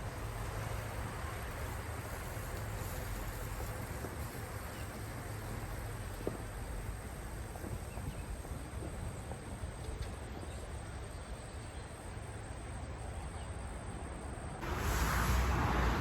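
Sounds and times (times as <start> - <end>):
loud rushing noise: 14.6 - 16.0.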